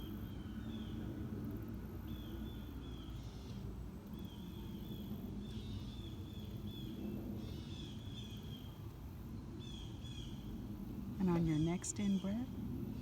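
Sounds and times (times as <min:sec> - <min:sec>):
distant traffic rumble: 0:03.7 - 0:13.0
birds chirping: 0:11.2 - 0:12.5.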